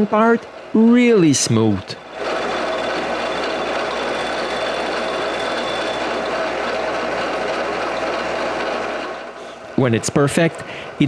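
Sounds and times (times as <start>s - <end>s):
milling machine cutting metal: 2.0s - 9.0s.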